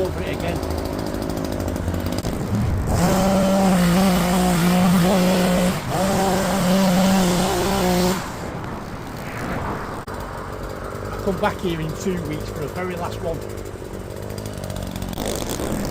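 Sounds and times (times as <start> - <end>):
powered garden tool running: 0.0 - 15.9.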